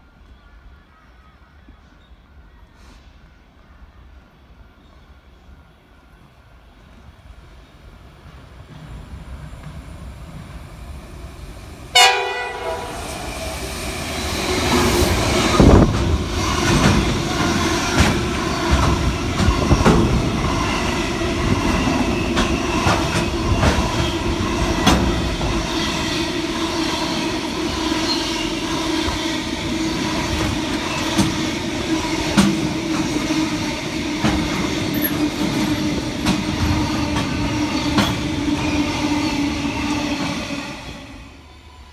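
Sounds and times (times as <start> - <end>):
train passing: 4.0 - 41.9
train horn: 11.9 - 13.4
wheels clicking over rail joints: 15.6 - 25.7, 29.9 - 38.9.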